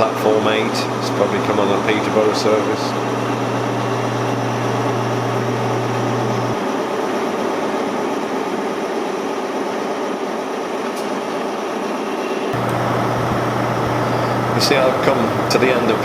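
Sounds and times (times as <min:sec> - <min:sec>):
trains rumbling in station: 0:06.5 - 0:16.0.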